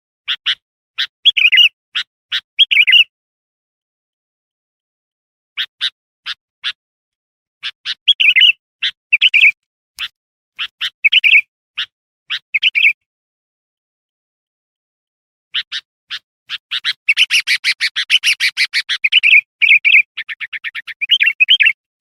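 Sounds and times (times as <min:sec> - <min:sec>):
bird chirping and chattering: 0:00.3 - 0:03.1, 0:05.6 - 0:06.8, 0:07.6 - 0:13.0, 0:15.5 - 0:21.9.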